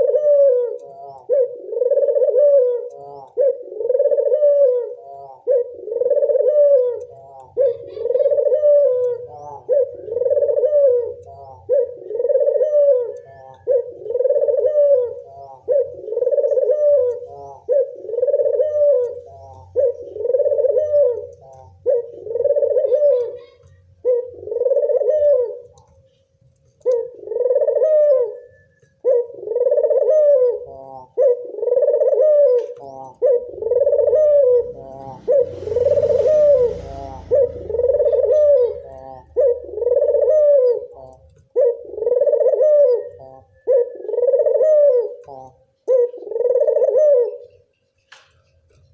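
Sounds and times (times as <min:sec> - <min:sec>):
dove cooing: 0:00.0 - 0:26.0, 0:26.7 - 0:47.8
low rumble: 0:34.6 - 0:39.1
rustling hiss: 0:35.0 - 0:38.5.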